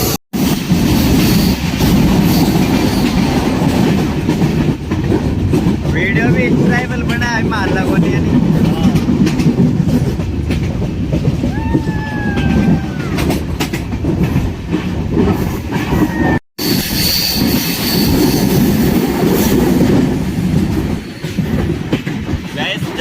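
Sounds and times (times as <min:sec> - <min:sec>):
train wheels rumbling and clattering: 0:00.0 - 0:23.0
train wheel squeal: 0:00.4 - 0:03.4, 0:15.8 - 0:19.8.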